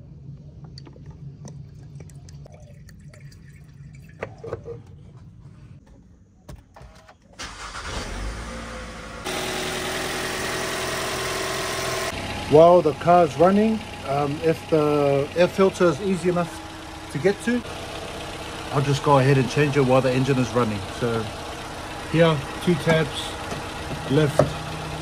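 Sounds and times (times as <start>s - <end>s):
car engine starting and idling: 6.9s - 25.0s.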